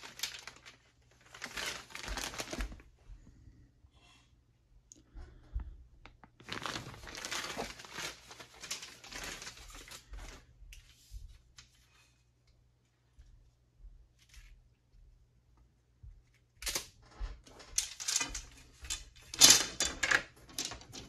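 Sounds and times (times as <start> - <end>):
wrapping material crinkling: 0.0 - 3.0, 6.2 - 12.2.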